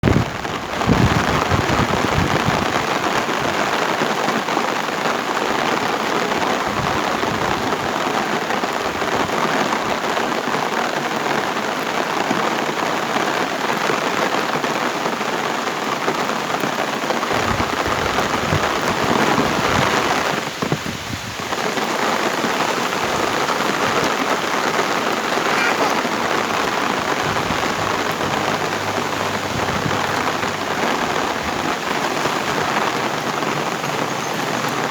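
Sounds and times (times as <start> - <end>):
heavy rain pouring: 0.0 - 34.9
low rumbles: 26.0 - 34.0.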